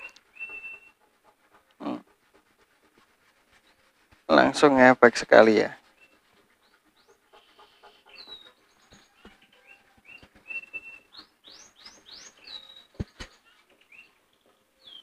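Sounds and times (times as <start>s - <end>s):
small birds chirping: 0.0s - 2.2s, 5.4s - 15.0s.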